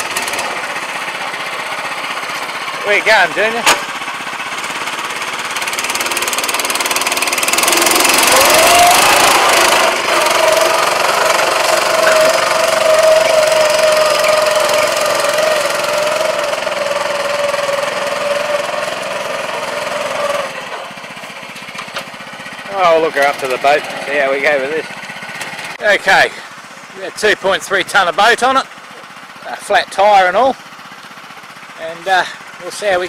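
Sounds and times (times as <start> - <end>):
petrol engine running: 0.0 - 33.0.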